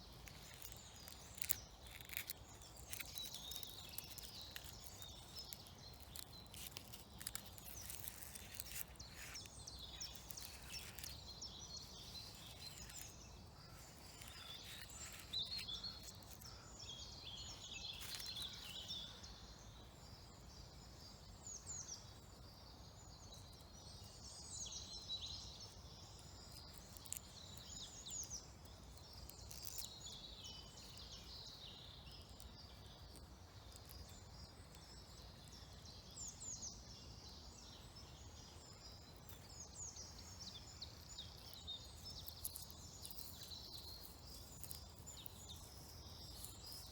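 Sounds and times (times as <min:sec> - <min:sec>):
birds chirping and trilling: 0:00.0 - 0:20.9.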